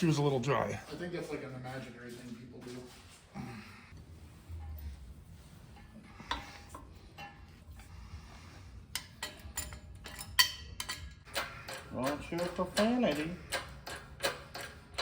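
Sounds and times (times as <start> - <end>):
metallic clinks of hand tools: 9.0 - 15.0.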